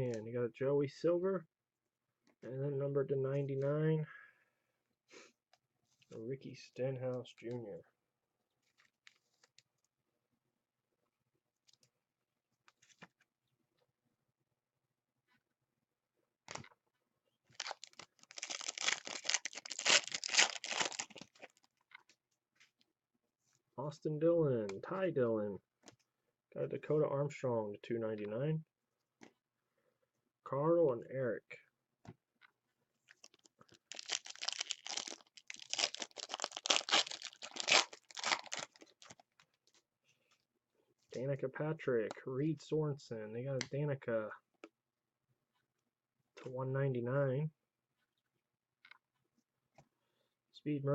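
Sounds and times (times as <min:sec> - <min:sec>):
foil wrapper tearing and crinkling: 0:17.6 - 0:21.7, 0:33.2 - 0:39.3.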